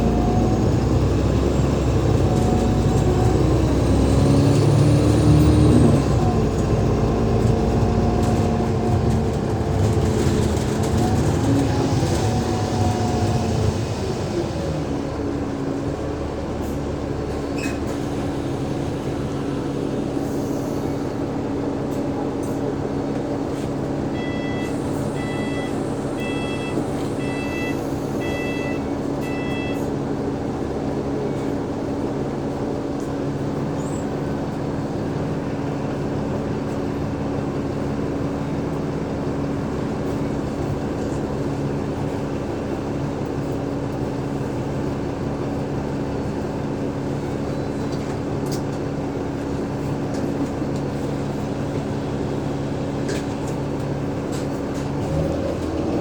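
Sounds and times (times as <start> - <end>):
bus diesel engine hum: 0.0 - 56.0
short electronic beeps: 24.2 - 29.8.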